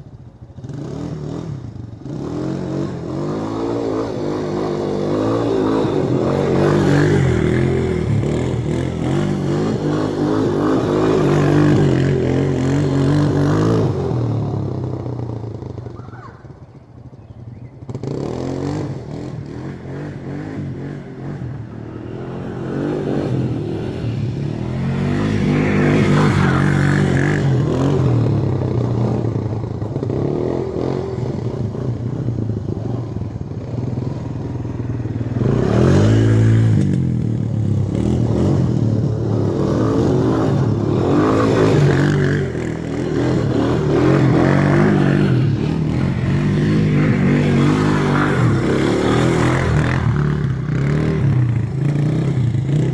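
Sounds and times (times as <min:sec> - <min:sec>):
atv engine revving: 0:00.0 - 0:52.9.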